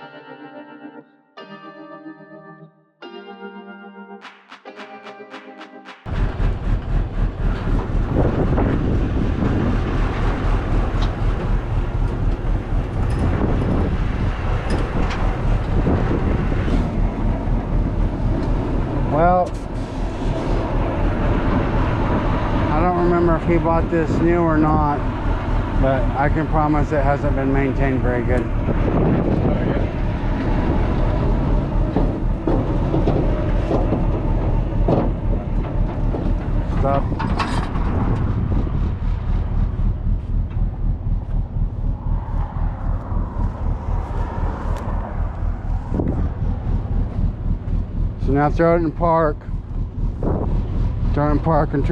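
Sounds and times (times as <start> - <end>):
music: 0.0 - 6.1
low vehicle rumble: 6.1 - 51.9
wind buffeting microphone: 6.1 - 51.9
metallic clanks and rattles: 6.2 - 16.9, 31.8 - 38.3.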